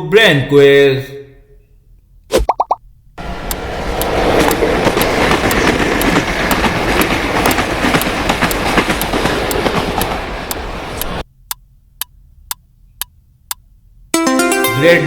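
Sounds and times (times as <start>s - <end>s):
train rumbling on rails: 3.2s - 11.2s
wheels clickety-clack: 3.2s - 11.2s.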